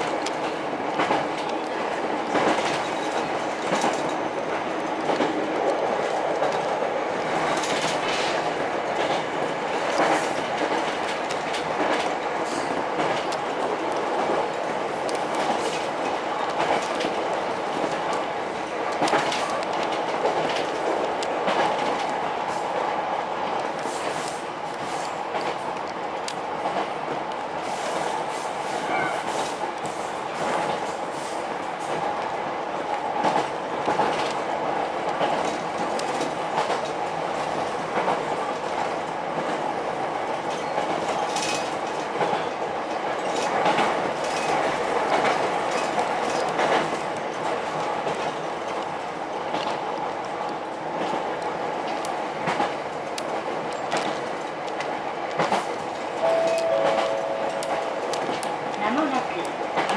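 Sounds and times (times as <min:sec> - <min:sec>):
clicks over rail joints: 0:00.0 - 0:22.8, 0:40.5 - 0:56.1
train wheels rumbling on rails: 0:00.0 - 0:59.9.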